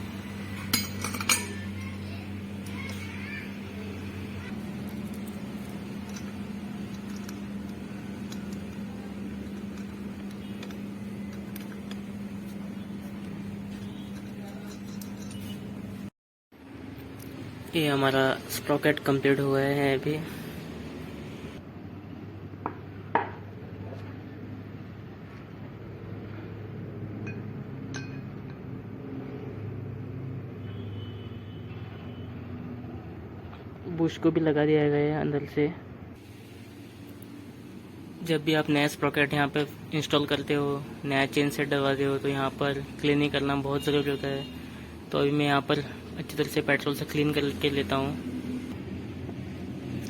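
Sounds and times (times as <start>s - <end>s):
low machine hum: 0.0s - 28.7s
light metallic clinks: 13.7s - 15.6s.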